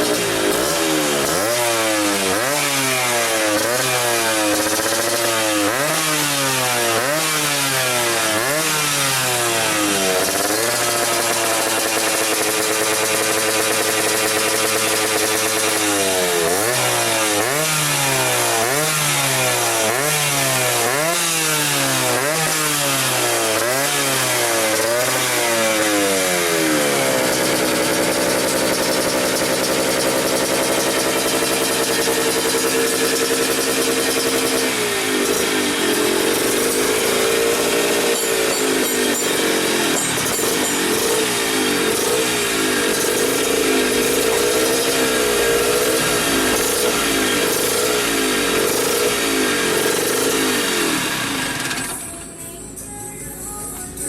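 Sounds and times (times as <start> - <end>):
two-stroke engine revving: 0.0 - 52.4.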